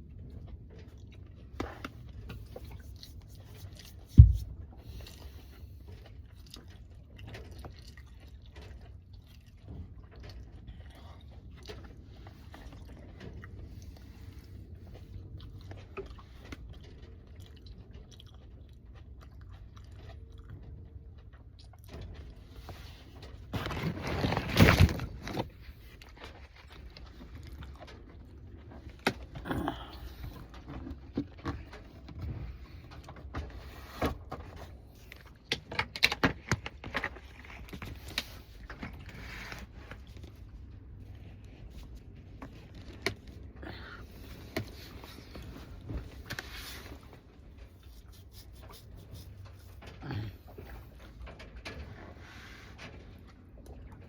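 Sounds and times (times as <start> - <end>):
person chewing and crunching: 26.0 - 33.2.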